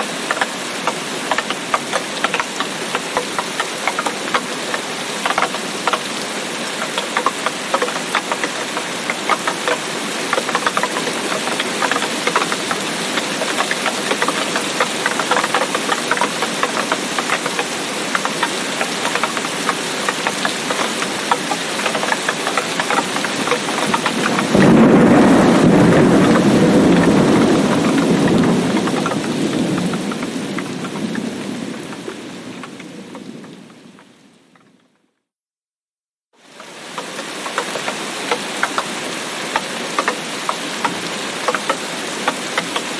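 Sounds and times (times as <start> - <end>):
heavy rain: 0.0 - 34.9, 36.4 - 42.9
thunder rumble: 23.3 - 34.3.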